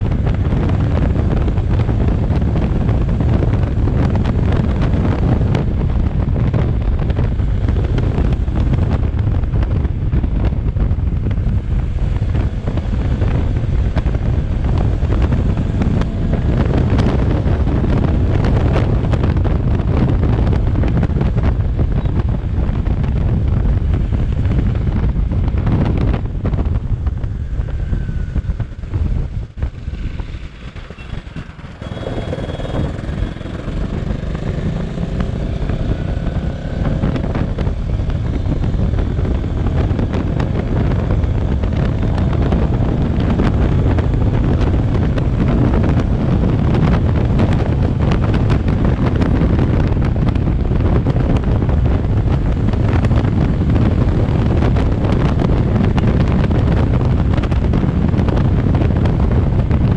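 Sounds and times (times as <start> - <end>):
motorcycle engine rumble: 0.0 - 59.9
wind buffeting on microphone: 0.0 - 59.9.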